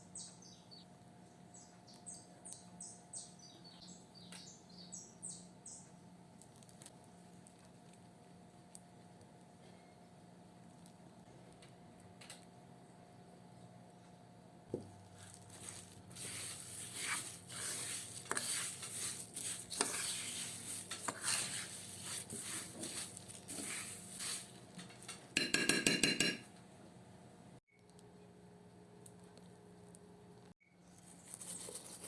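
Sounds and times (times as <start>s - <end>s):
dishes and cutlery clinking: 24.8s - 26.5s.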